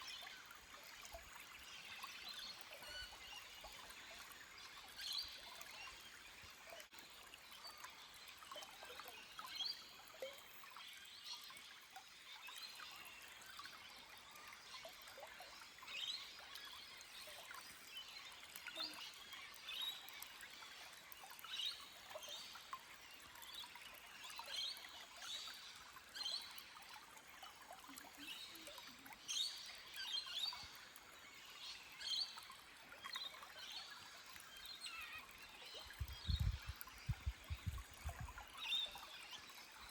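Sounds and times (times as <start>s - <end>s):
stream trickling over rocks: 0.0s - 39.9s
bird chirps: 35.8s - 39.2s.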